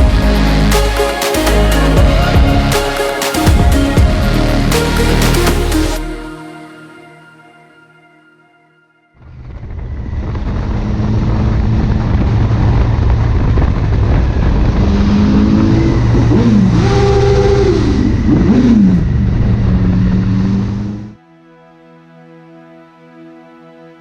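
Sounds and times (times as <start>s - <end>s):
wind rumble on microphone: 9.2s - 21.2s.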